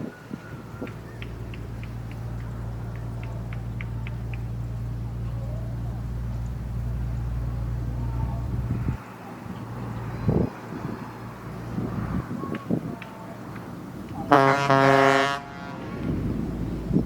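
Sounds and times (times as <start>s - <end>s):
low motor hum: 0.4s - 12.3s.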